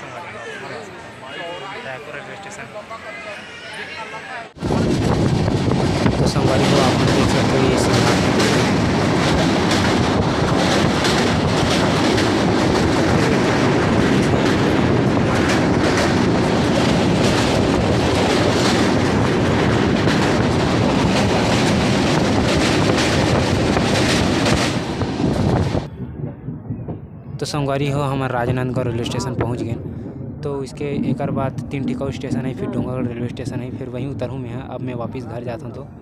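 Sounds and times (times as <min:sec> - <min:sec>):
train wheels rumbling on rails: 0:04.6 - 0:35.8
rapid clatter on bridge: 0:04.7 - 0:25.9.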